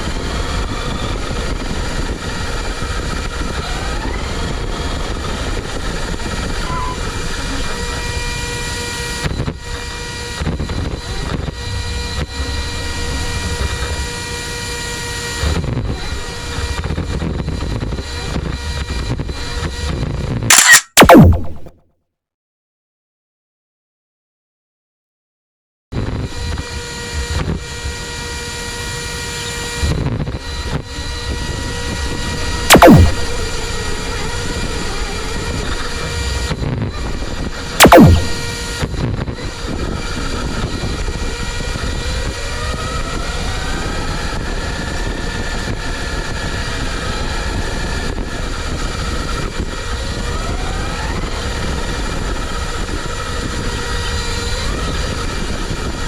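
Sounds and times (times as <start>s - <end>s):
whine sweeping down in pitch: 20.5s - 21.8s, 32.7s - 33.6s, 37.8s - 38.6s
high-pitched motor whine: 32.7s - 34.2s.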